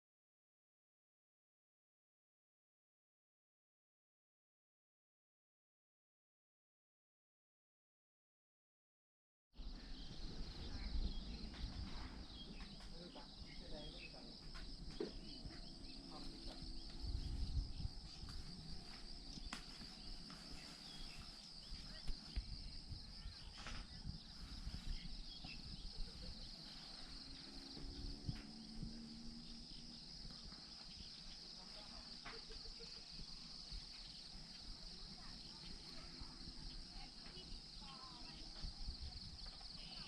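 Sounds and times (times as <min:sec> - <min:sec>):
insect chorus: 0:09.6 - 0:40.0.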